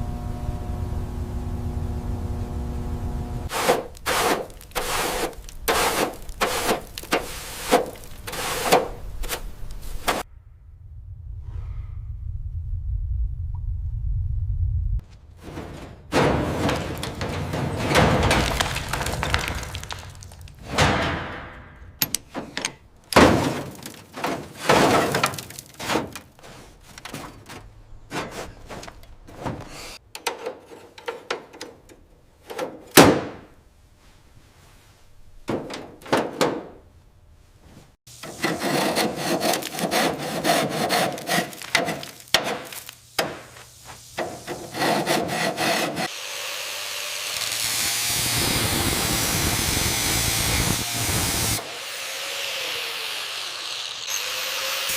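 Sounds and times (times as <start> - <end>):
steady hissing spray: 3.5 - 8.8, 42.8 - 44.9
knocks thuds and scrapes: 3.5 - 10.3, 15.0 - 31.6, 32.4 - 36.8, 37.4 - 46.1
power tool running: 46.1 - 54.9.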